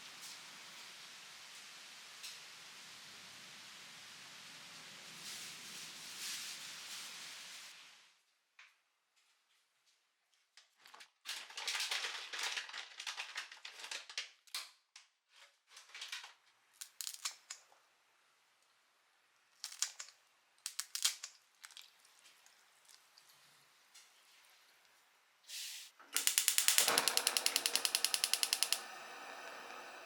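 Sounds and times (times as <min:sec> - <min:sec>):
rustling and crinkling: 0:09.2 - 0:17.4
sharp clicks: 0:26.2 - 0:30.0.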